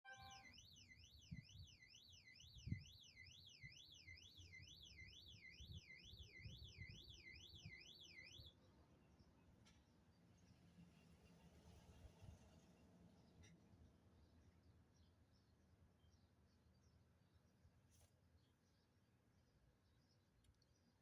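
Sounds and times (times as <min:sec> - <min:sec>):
electronic alarm sweeping tone: 0:00.0 - 0:08.5.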